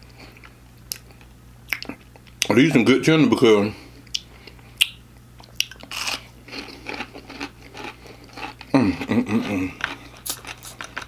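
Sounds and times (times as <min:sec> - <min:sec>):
crispy food crunching: 0:05.4 - 0:11.0.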